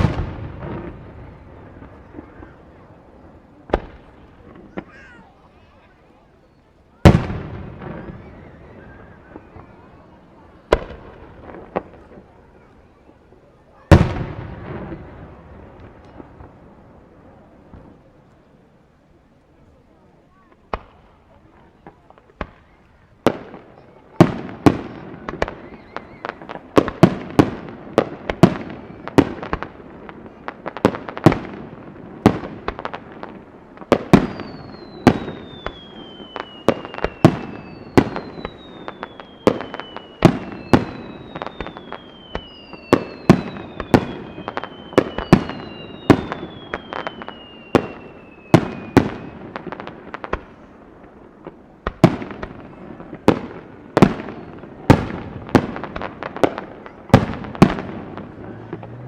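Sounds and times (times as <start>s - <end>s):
firework whistles falling in pitch: 7.7s - 9.9s, 24.9s - 26.6s, 34.1s - 49.5s.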